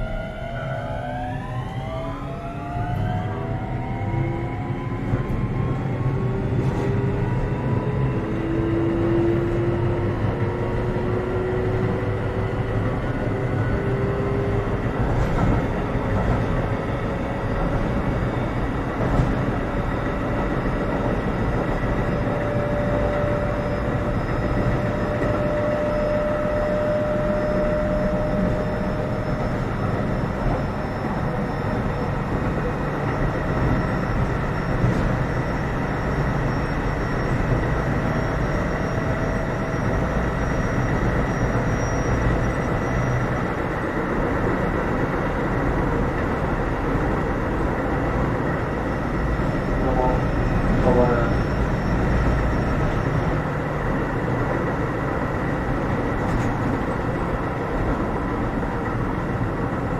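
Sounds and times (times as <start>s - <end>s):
train wheel and rail rumble: 0.0s - 59.9s
train motor whine rising: 19.7s - 59.5s.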